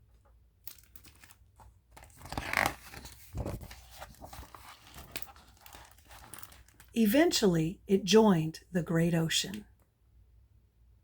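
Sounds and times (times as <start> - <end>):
paper page turning: 0.7 - 6.9.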